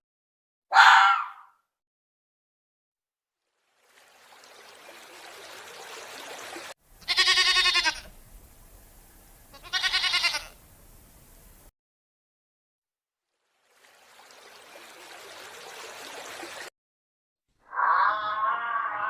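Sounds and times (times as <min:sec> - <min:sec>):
faint background hiss: 0:06.9 - 0:11.7
goat bleating: 0:07.0 - 0:08.1, 0:09.5 - 0:10.6.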